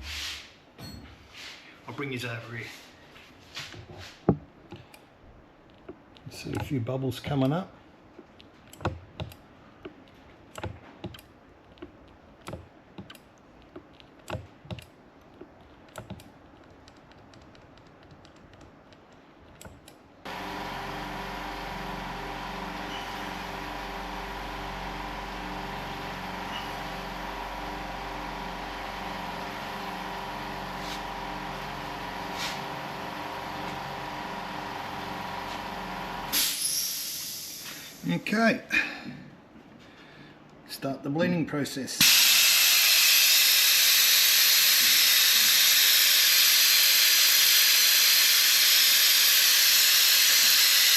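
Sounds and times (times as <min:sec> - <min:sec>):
small pump pulsing hum: 0:20.2 - 0:36.6.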